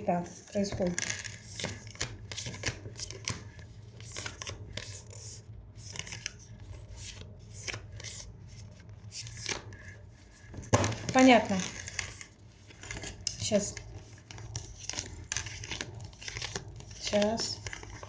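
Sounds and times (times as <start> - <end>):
cards being shuffled: 0.5 - 18.0.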